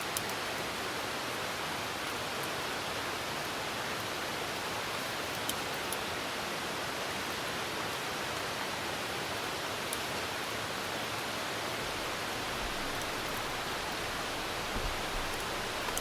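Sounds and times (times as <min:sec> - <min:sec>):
steady rain hissing: 0:00.0 - 0:16.0
campfire ticks: 0:11.9 - 0:16.0.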